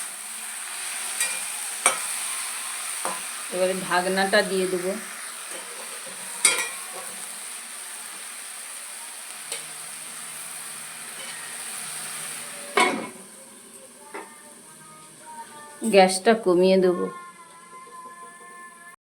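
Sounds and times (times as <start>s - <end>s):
greens sizzling in a pan: 0.0s - 16.9s.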